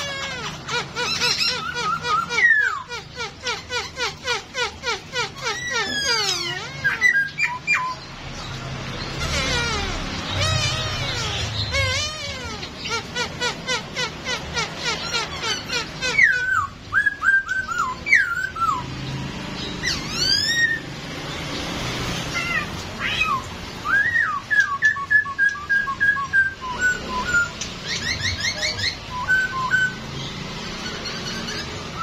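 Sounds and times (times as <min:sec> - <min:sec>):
bird singing whistled phrases: 0:01.1 - 0:03.0, 0:05.5 - 0:08.1, 0:16.1 - 0:18.8, 0:22.5 - 0:30.1.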